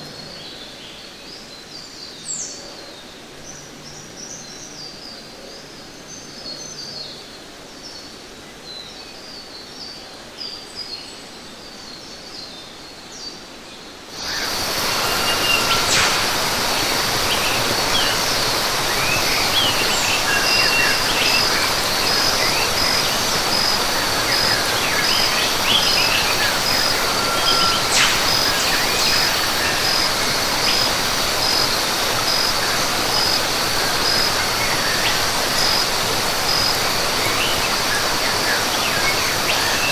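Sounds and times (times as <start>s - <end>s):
small birds chirping: 14.0s - 39.9s
bird calls: 14.1s - 39.9s
rush of water: 14.1s - 39.9s.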